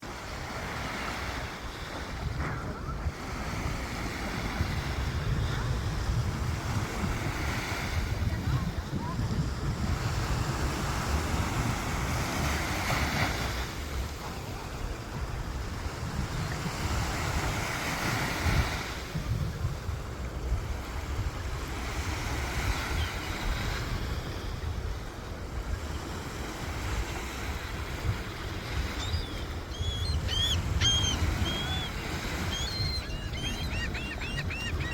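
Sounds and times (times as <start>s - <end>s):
sea surf washing in: 0.1s - 34.9s
wind buffeting microphone: 0.3s - 34.9s
seagull calling: 28.9s - 34.9s.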